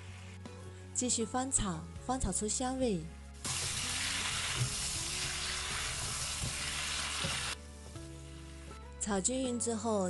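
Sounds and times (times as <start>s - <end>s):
faint background music: 0.0s - 10.0s
prawns sizzling in oil: 3.4s - 7.6s.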